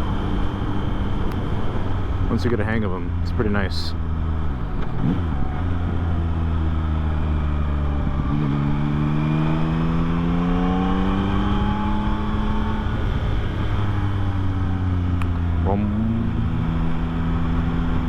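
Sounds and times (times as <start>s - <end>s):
motorcycle engine: 0.0s - 18.0s
wind noise: 7.8s - 14.8s.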